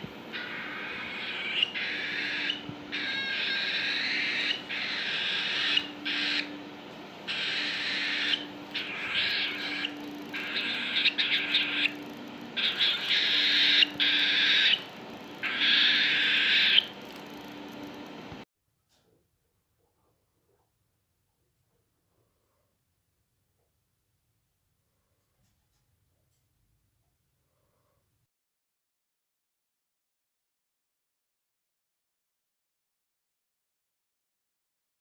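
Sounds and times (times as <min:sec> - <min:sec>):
cockatiel raspy hissing calls: 0:00.3 - 0:06.5, 0:07.3 - 0:17.0.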